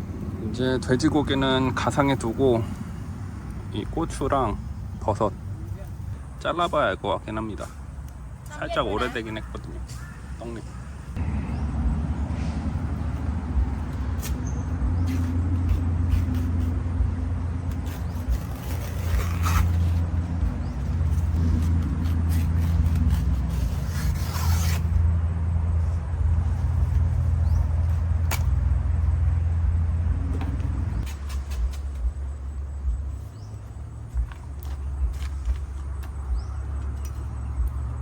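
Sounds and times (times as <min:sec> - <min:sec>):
scraping: 0:15.0 - 0:25.1.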